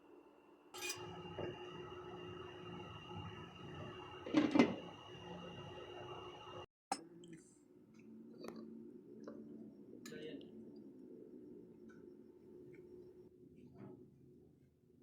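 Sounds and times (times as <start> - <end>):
steady hum: 0.8 - 6.7.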